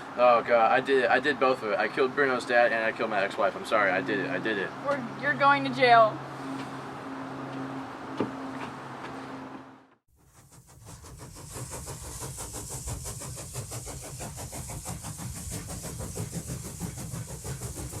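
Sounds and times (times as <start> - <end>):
train wheels clattering: 10.8 - 18.0.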